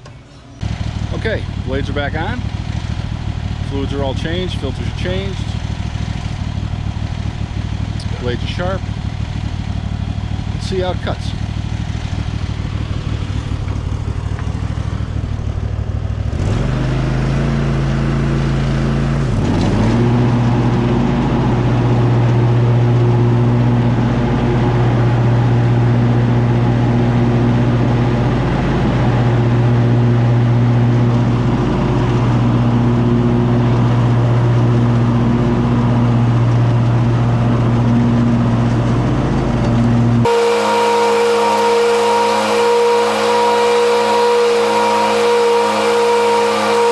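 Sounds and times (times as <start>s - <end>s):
lawn mower engine revving: 0.6s - 46.9s
high steady whine: 40.3s - 46.9s.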